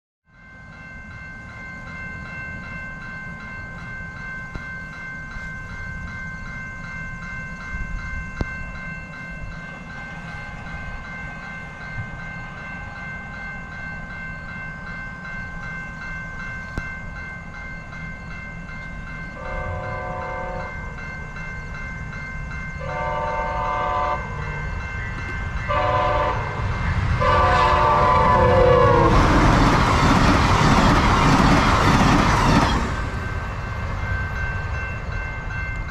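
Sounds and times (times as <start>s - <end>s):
train rumble: 0.7s - 35.9s
locomotive air horn blasts: 19.4s - 20.8s, 22.8s - 24.4s, 25.7s - 29.4s.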